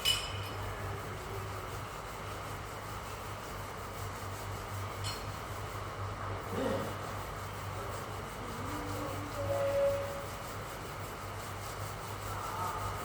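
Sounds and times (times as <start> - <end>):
sandpaper rubbing a surface: 6.5 - 13.0.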